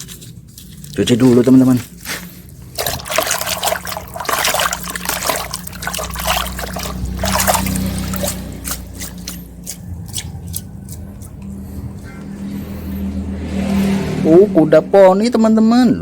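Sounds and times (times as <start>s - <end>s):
water trickling and splashing: 0.0s - 11.8s.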